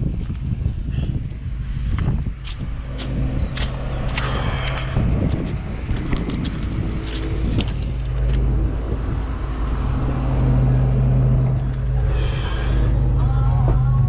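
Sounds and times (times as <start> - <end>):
excavator diesel engine: 2.8 - 14.0.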